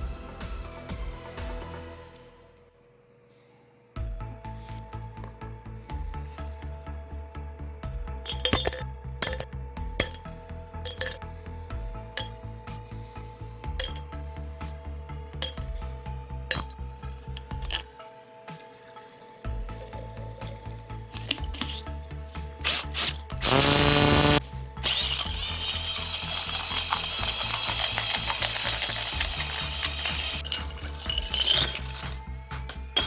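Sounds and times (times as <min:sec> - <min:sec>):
hammer drill motor whining: 0:22.6 - 0:30.4
rapid mechanical ratcheting: 0:22.6 - 0:31.8.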